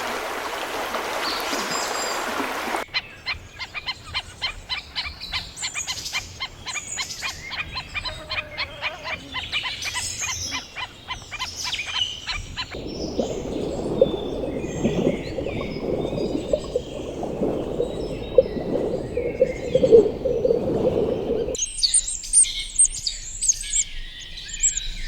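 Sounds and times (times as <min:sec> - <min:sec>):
chirps: 0:12.8 - 0:25.0.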